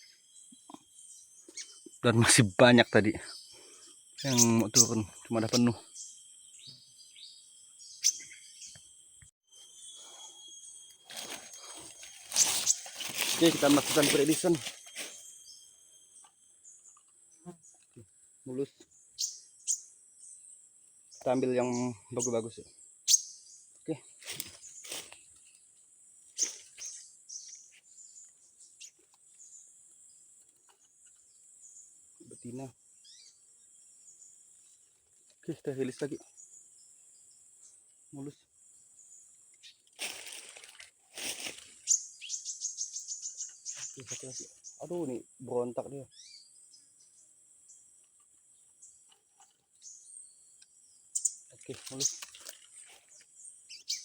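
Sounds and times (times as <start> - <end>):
high insect drone: 0.0 - 23.6
crickets droning: 0.0 - 30.4, 31.0 - 49.1
small birds chirping: 0.0 - 54.0
rustling handling noise: 11.0 - 15.3, 40.0 - 41.9.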